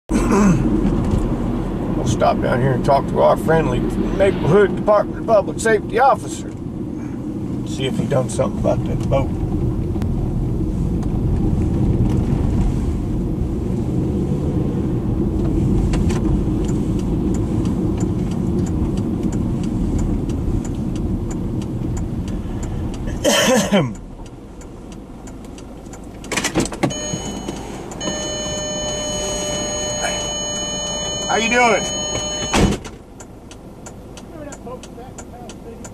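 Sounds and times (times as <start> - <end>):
car cabin rumble: 14.6 - 35.9
clicks: 24.2 - 35.9
electronic warning tone: 26.9 - 32.8.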